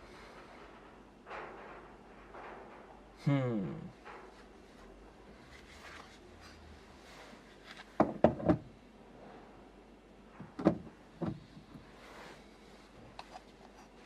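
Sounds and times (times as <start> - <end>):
hard parts knocking and clunking: 0.0 - 5.5, 7.9 - 8.8, 10.3 - 12.0.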